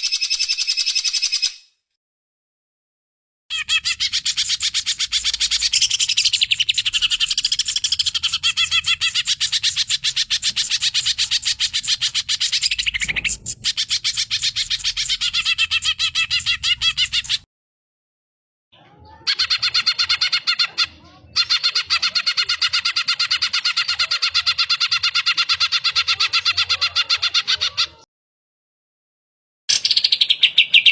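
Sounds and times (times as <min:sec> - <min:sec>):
bird singing chattering notes: 0:03.5 - 0:17.4.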